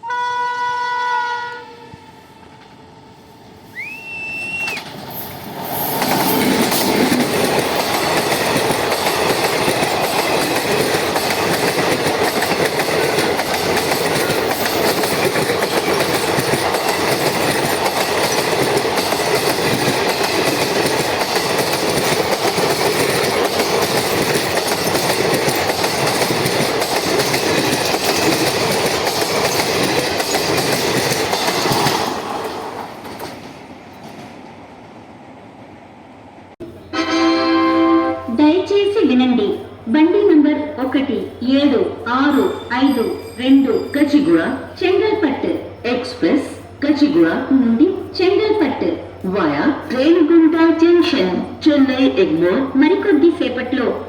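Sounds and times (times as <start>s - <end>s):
locomotive horn: 0.0s - 2.8s, 36.8s - 38.4s
short high whistle: 3.7s - 4.9s
train wheels clattering on rails: 4.4s - 34.7s, 39.3s - 54.0s.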